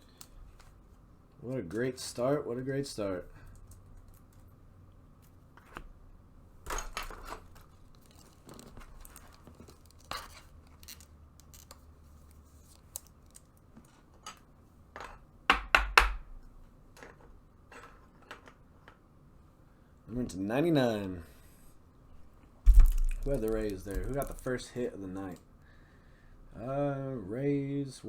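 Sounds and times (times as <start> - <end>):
rustling of cards and wrappers: 7.2 - 14.2, 22.7 - 25.4.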